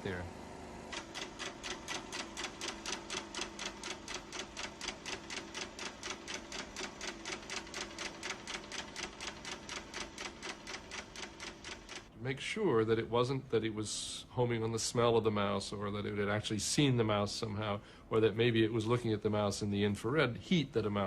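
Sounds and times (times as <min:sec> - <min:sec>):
faint steady hum: 0:00.0 - 0:21.0
rapid even clicking: 0:00.9 - 0:12.1.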